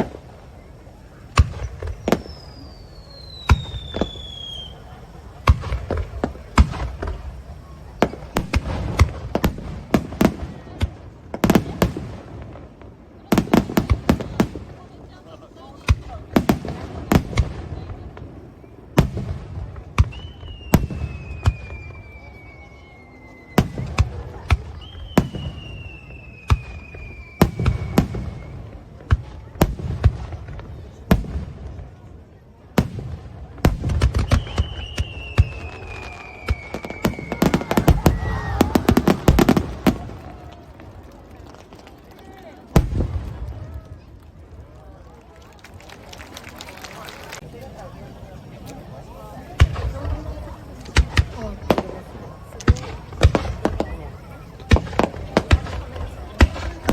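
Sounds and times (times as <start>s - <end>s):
fireworks bangs and crackles: 0.0s - 56.9s
firework whistle falling in pitch: 1.6s - 5.0s, 20.0s - 24.0s, 24.6s - 28.8s, 34.2s - 39.6s.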